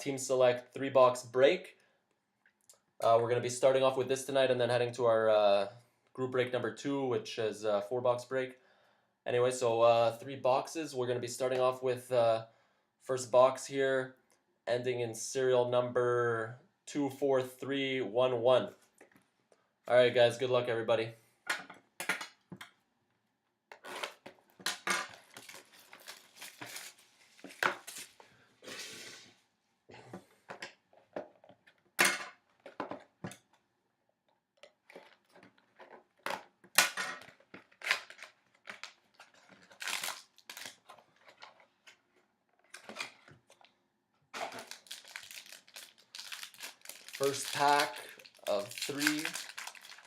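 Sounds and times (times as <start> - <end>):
card box wrapper crinkling: 25.1 - 28.2, 37.6 - 41.5, 44.4 - 50.0.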